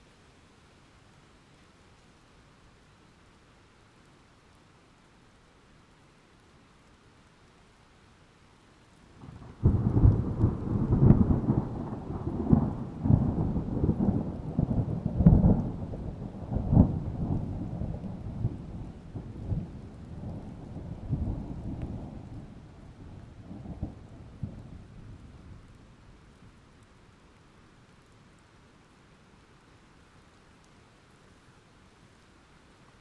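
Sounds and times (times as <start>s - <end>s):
thunder rumbling and cracking: 9.2s - 25.8s.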